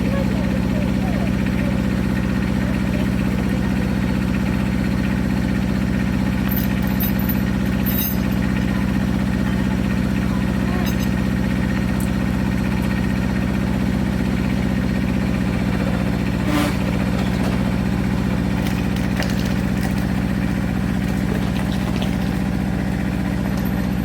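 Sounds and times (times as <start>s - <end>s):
sawmill engine running: 0.0s - 24.0s
loud rasp: 16.4s - 17.0s.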